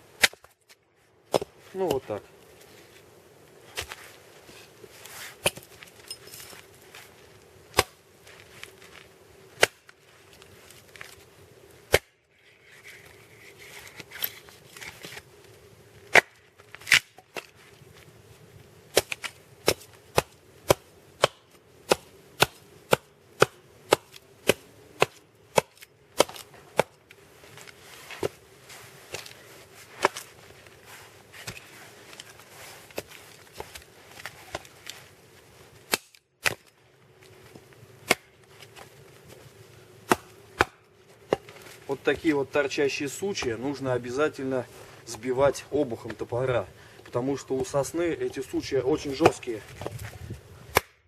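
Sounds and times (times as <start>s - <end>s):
axe striking a log: 0.2s - 0.5s, 1.3s - 1.5s, 7.7s - 8.0s, 9.6s - 9.8s, 11.9s - 12.1s, 18.9s - 26.9s, 38.0s - 38.3s, 40.1s - 41.4s, 50.7s - 51.0s.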